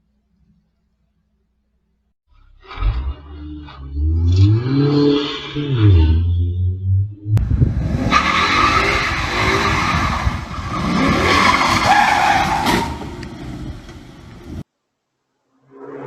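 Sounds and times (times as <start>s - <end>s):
car engine: 2.6s - 14.6s
car tyres skidding and squealing: 7.7s - 14.6s.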